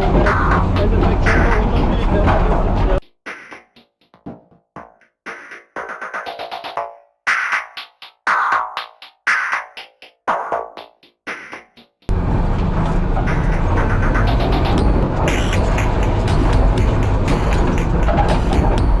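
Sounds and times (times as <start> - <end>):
loud steady low sound: 0.0 - 3.0, 12.1 - 19.0
electronic music with choppy hits: 0.0 - 19.0.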